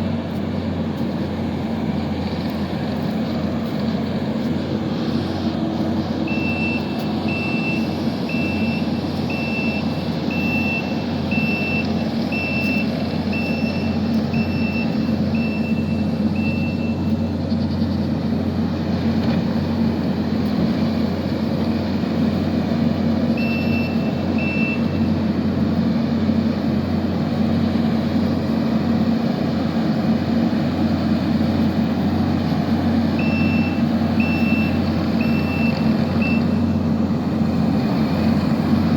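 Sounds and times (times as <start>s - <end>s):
diesel engine running: 0.0s - 38.9s
backup alarm beeping: 6.3s - 17.2s, 23.4s - 25.1s, 33.2s - 36.8s.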